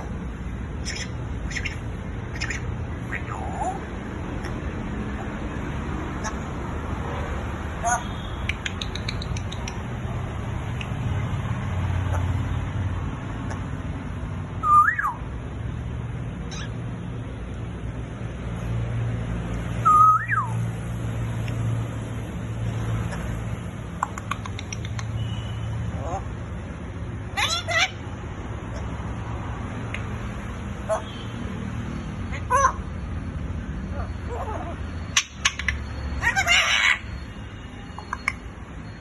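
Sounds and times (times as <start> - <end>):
parrot whistling: 0.8 - 3.8, 14.6 - 15.2, 19.8 - 20.6.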